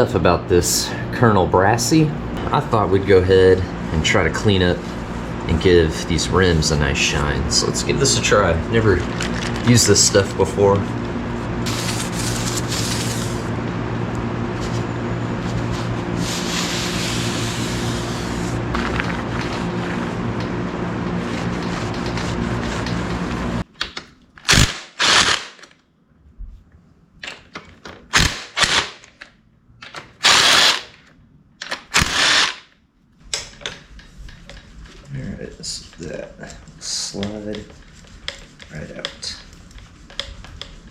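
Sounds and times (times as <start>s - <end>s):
loud scraping or hissing bursts: 11.6s - 13.5s, 15.5s - 18.7s
power tool running: 16.2s - 20.4s, 24.5s - 25.6s, 30.2s - 30.9s, 31.9s - 32.7s.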